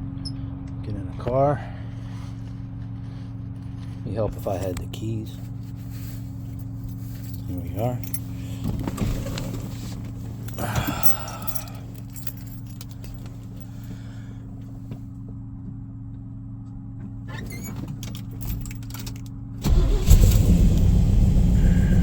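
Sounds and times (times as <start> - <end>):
steady low hum: 0.0 - 15.6
car engine starting and running: 4.6 - 15.0, 17.2 - 22.0
keys jingling: 5.9 - 14.2, 17.3 - 20.9.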